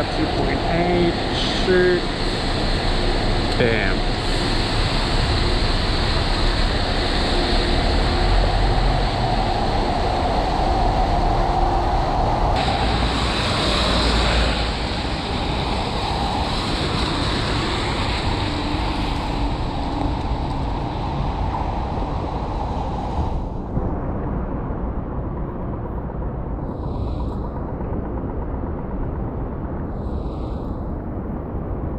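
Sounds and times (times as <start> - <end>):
heavy pouring rain: 0.0 - 23.2
low rumbling on microphone: 0.0 - 31.9
passing city traffic: 12.6 - 22.0.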